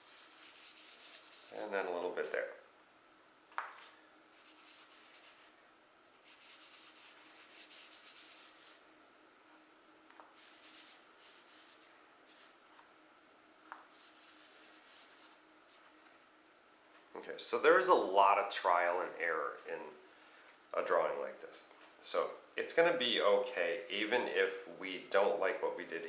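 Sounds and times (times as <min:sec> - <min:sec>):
charcoal scratching on paper: 0:00.0 - 0:01.7, 0:03.7 - 0:08.8, 0:10.2 - 0:12.6, 0:13.9 - 0:15.9.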